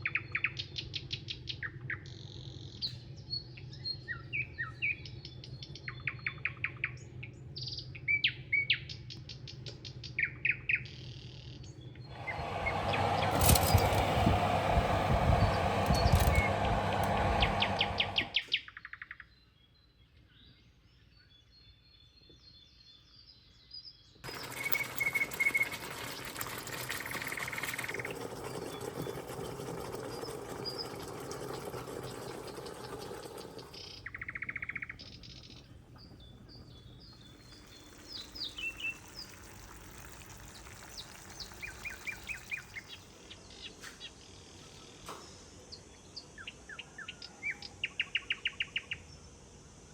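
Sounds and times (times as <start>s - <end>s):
birds chirping: 12.0s - 18.5s, 28.0s - 43.1s.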